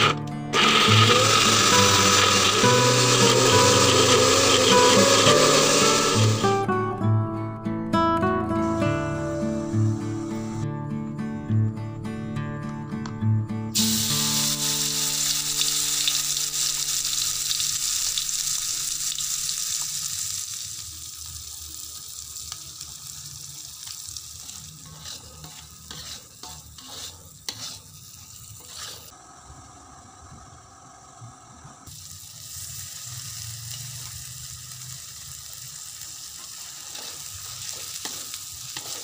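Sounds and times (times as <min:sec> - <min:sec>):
guitar music: 0:00.0 - 0:17.6
spice paste sizzling in hot oil: 0:00.6 - 0:06.6, 0:13.8 - 0:29.2, 0:31.9 - 0:39.0
spatula scraping and clinking wok: 0:24.4 - 0:29.1, 0:36.4 - 0:39.0.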